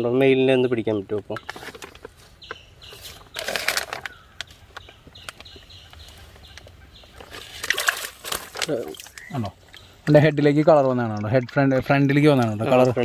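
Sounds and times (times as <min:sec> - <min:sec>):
water splashing in fish tank: 0:07.2 - 0:13.0.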